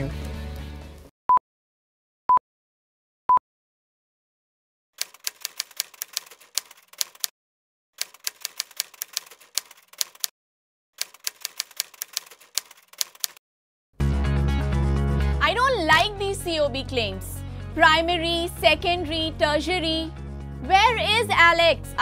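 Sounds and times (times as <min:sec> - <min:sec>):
keyboard typing clicks: 0:05.0 - 0:07.3, 0:08.0 - 0:10.3, 0:11.0 - 0:13.4.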